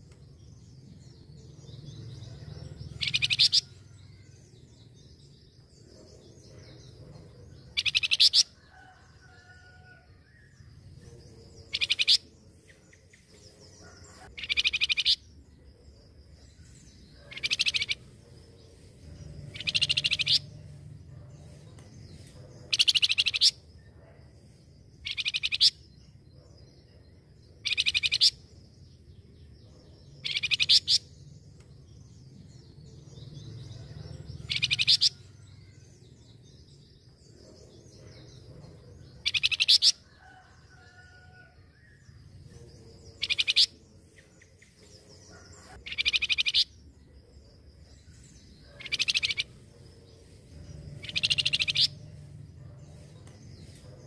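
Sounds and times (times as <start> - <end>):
bird chattering: 2.9 - 3.7, 7.8 - 8.5, 14.2 - 15.2, 17.2 - 18.2, 19.5 - 20.5, 22.7 - 23.6, 25.0 - 25.8, 27.7 - 28.4, 30.2 - 31.1, 39.2 - 40.0, 43.2 - 43.7, 45.4 - 46.7, 48.7 - 49.6, 50.9 - 52.1.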